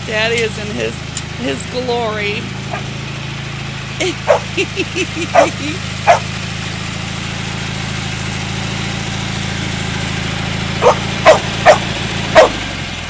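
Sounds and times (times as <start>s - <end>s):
tractor engine humming: 0.0s - 13.0s
dog barking: 2.7s - 2.9s, 4.1s - 6.3s, 10.8s - 12.6s.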